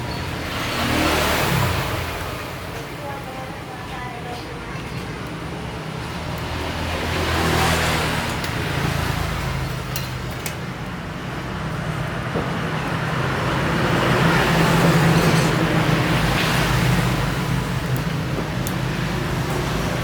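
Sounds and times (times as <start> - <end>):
passing road traffic: 0.0 - 20.0.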